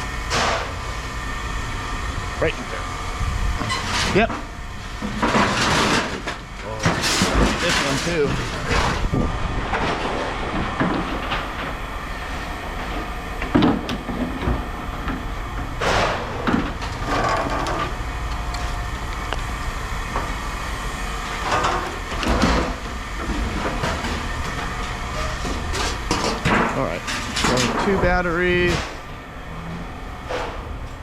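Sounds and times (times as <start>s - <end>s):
steady low rumble: 0.0s - 7.4s, 8.1s - 31.0s
scrap metal knocks and clatters: 5.0s - 9.1s, 15.8s - 17.9s, 21.4s - 29.0s.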